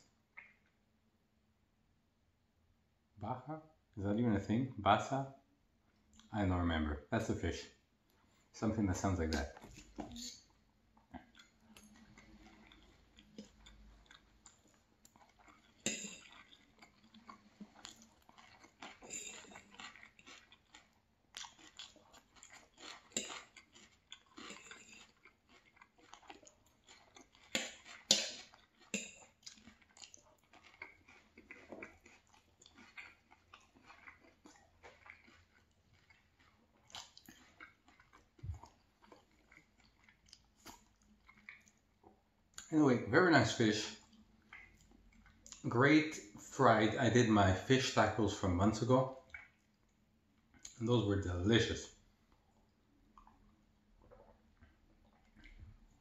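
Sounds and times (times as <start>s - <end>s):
crunchy chewing: 9.1s - 42.2s, 52.3s - 56.0s.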